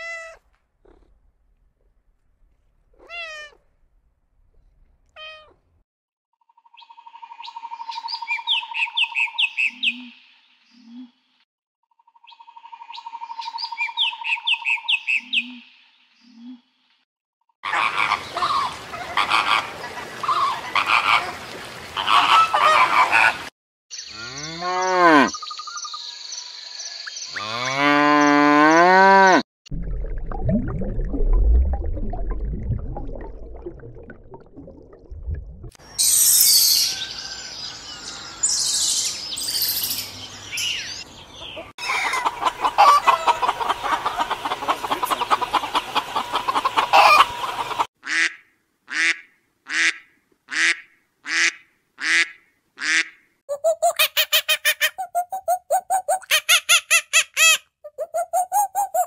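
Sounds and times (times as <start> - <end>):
low animal rumble: 0.8 - 1.4
hens clucking: 41.4 - 47.9
flamingo flock honking: 41.8 - 47.4
pitched animal calls gliding: 53.5 - 59.0.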